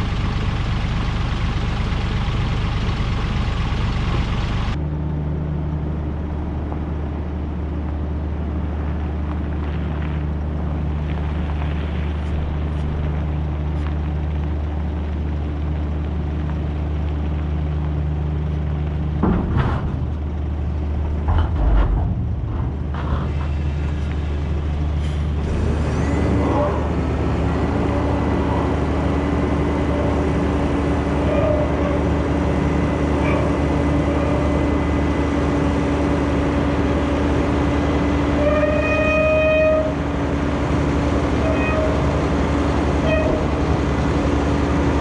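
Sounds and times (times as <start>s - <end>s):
heavy engine idling: 0.0s - 45.0s.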